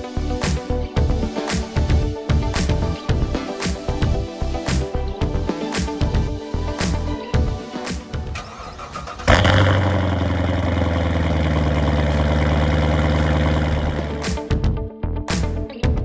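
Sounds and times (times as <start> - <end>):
background music: 0.0 - 16.0
car engine starting and idling: 8.3 - 14.3.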